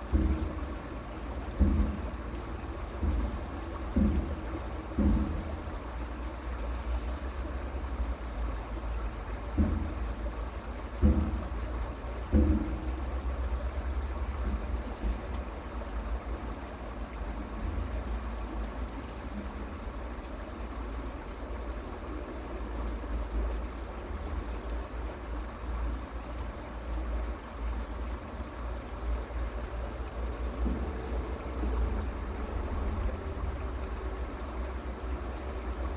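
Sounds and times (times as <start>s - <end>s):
creek water running: 0.0s - 35.9s
single thump: 1.5s - 2.3s, 3.0s - 5.6s.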